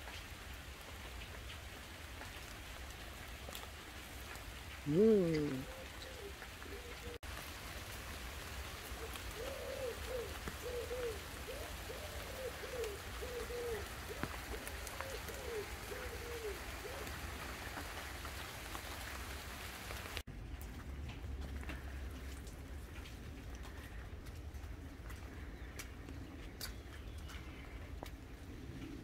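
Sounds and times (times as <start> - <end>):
rain pattering on leaves: 0.0 - 29.0
pigeon cooing: 4.9 - 7.2, 8.9 - 17.6.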